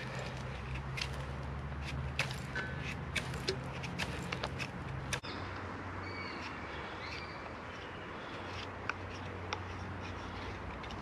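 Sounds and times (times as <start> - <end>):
small bird chirping: 5.1 - 9.2.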